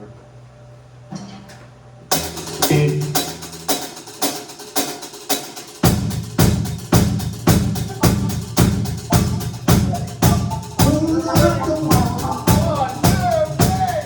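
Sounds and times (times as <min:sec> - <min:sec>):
live rock band playing: 0:05.9 - 0:14.0
deep bass: 0:06.5 - 0:14.0.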